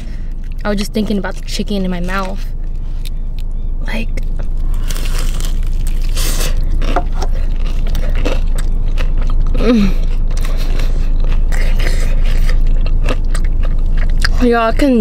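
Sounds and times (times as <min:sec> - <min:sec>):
crunchy biting and chewing: 0:00.0 - 0:15.0
steady low hum: 0:00.0 - 0:15.0
person humming: 0:09.6 - 0:10.0.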